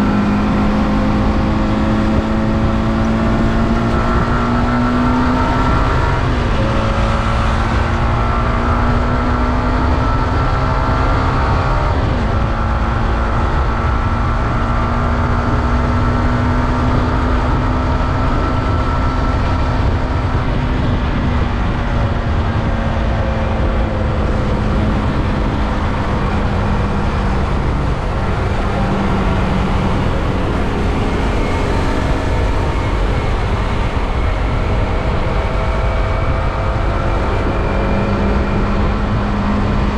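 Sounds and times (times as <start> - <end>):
wind rumble: 0.0 - 39.9
motorcycle engine running: 11.6 - 39.9.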